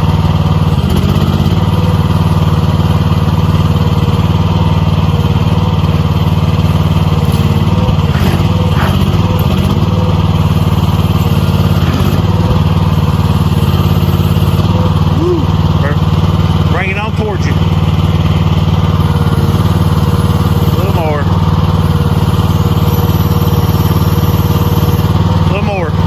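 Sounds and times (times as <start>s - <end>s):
engine running steadily: 0.0s - 26.0s.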